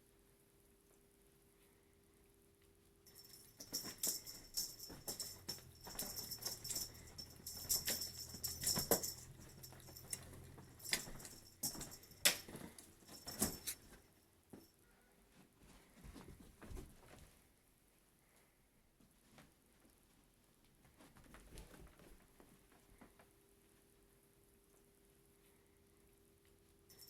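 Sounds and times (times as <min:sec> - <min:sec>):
jingling and rattling: 0:03.1 - 0:14.1.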